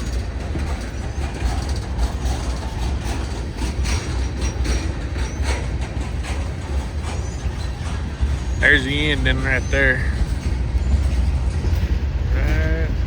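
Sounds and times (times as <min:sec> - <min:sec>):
freight train rumbling past: 0:00.0 - 0:13.0
wheel clicks on rail joints: 0:00.0 - 0:13.0
faint wheel squeals: 0:06.7 - 0:13.0.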